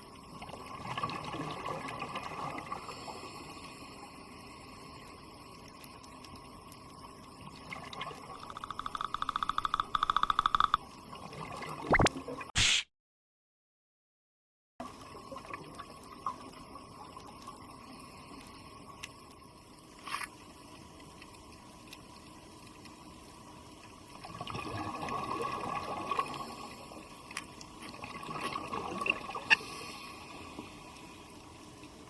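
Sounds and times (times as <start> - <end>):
small clicks: 8.4 - 10.8
underwater watery hiss: 29.5 - 31.3.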